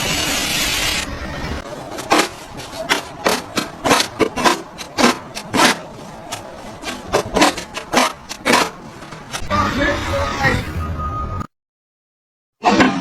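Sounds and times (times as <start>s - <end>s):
short scraping strokes: 1.6s - 10.5s.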